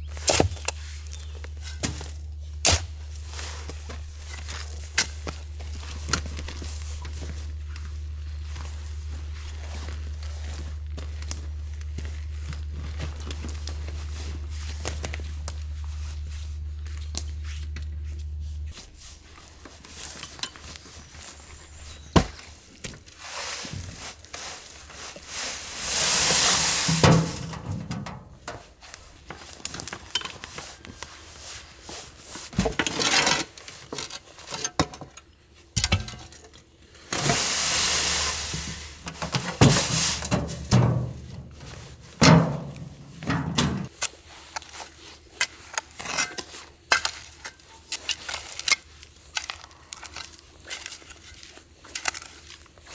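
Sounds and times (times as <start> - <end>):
steady low hum: 0.0 - 22.7
shovel scraping sand: 23.2 - 28.1, 37.0 - 43.2.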